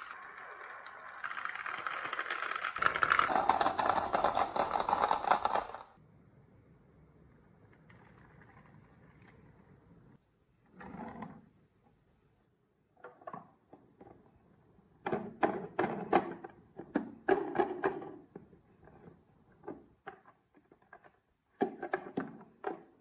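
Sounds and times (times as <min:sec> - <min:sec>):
marbles clattering down wooden track: 0:00.0 - 0:05.9.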